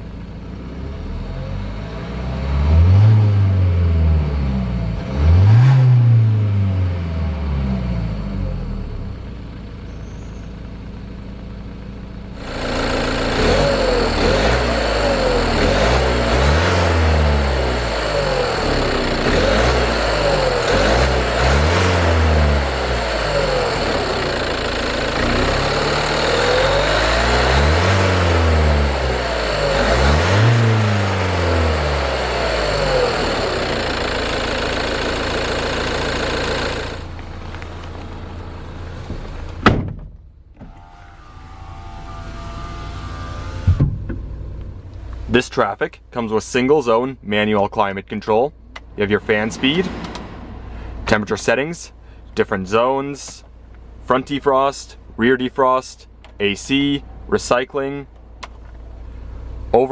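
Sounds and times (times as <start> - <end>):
diesel van engine idling and revving: 0.0 - 47.3.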